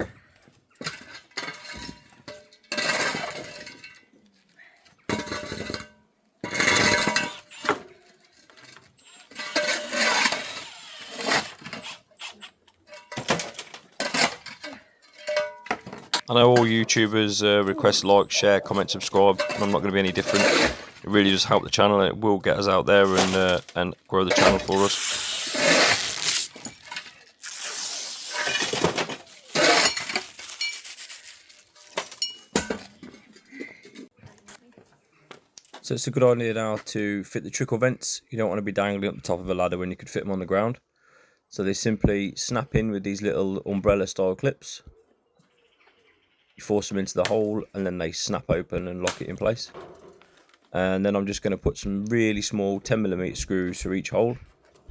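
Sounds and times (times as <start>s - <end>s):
hard objects clattering: 0.8s - 4.2s, 5.1s - 10.6s, 12.7s - 21.5s, 22.9s - 34.2s
tools clinking and scraping: 0.8s - 4.2s, 5.1s - 21.4s, 23.0s - 34.1s.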